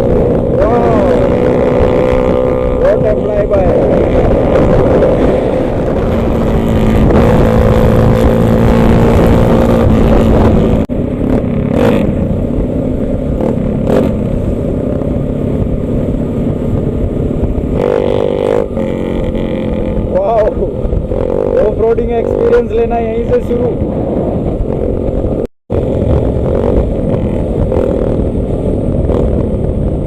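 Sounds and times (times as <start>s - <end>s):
motorcycle engines rumbling: 0.0s - 30.0s.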